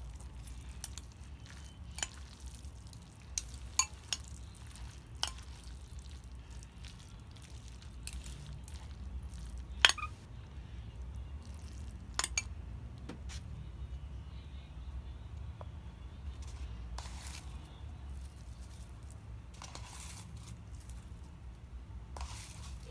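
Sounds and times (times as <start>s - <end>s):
utensils clicking against a dish: 5.2s - 5.6s.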